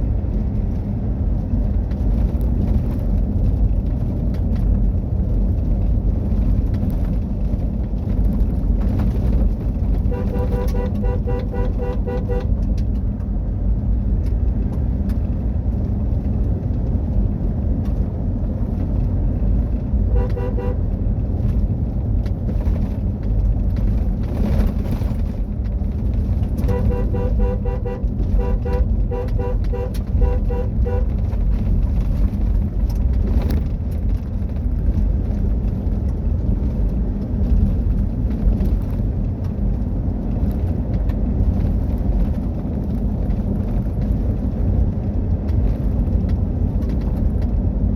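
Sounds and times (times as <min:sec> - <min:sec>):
car rumbling over rough ground: 0:00.0 - 0:47.9.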